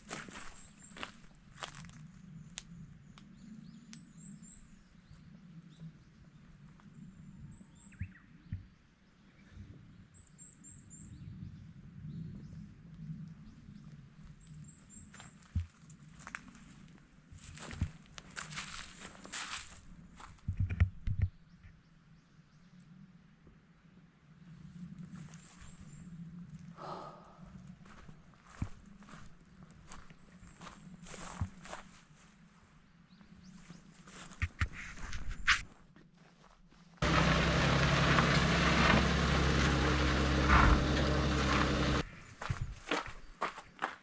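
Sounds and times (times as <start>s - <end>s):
faint birds chirping: 0.0s - 15.6s, 25.1s - 31.8s
steady low hum: 37.0s - 42.0s.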